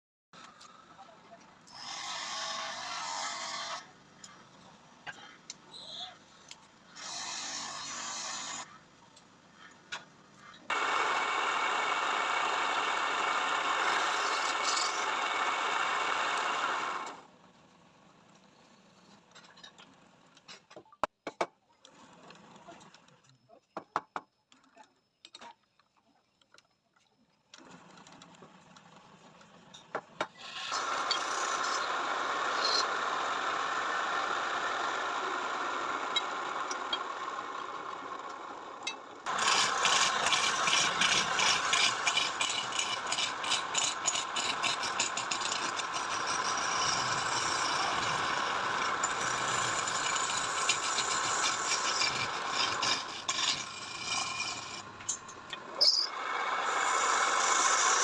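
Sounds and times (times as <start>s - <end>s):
motor-driven machine running: 39.3s - 55.0s.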